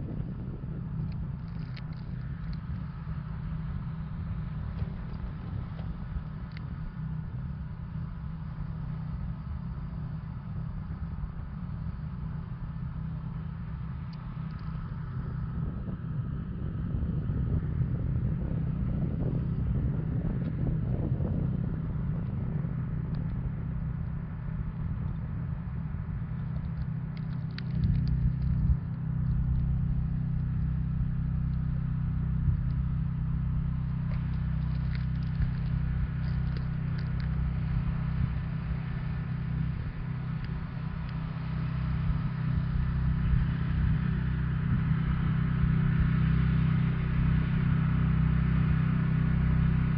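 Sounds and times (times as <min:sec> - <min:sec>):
engine humming: 0:00.0 - 0:49.9
faint clicks: 0:01.0 - 0:02.8, 0:04.8 - 0:06.7, 0:26.4 - 0:28.6, 0:34.1 - 0:37.4.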